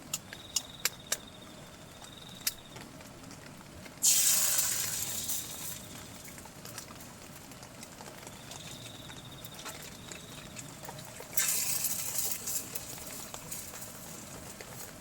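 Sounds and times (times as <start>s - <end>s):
heavy rain pattering: 2.3s - 15.0s
loud hissing rush: 4.0s - 6.1s.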